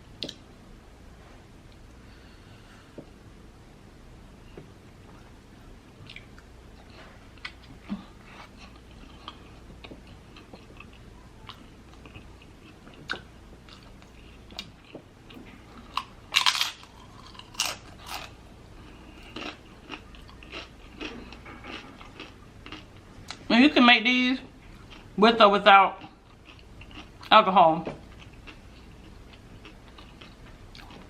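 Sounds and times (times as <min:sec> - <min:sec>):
person chewing and crunching food: 0:06.0 - 0:23.5, 0:24.6 - 0:25.2, 0:26.0 - 0:27.3, 0:28.0 - 0:31.0.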